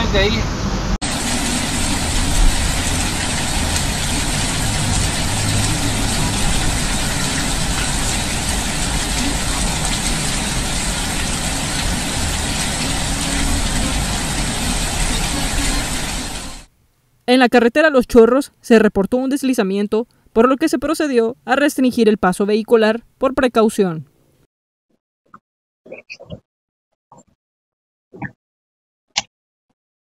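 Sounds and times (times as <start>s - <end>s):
floodwater running: 1.0s - 16.7s
heavy rain pouring: 1.0s - 16.7s.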